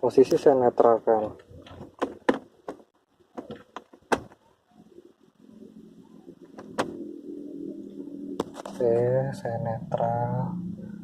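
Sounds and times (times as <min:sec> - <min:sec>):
faint low hum: 0:02.6 - 0:11.0.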